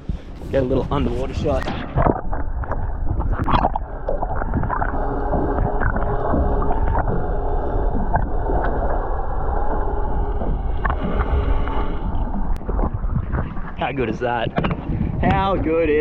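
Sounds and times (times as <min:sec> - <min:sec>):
faint humming tones: 0:00.0 - 0:16.0
muffled underwater rumble: 0:00.0 - 0:16.0
water sloshing: 0:00.0 - 0:16.0.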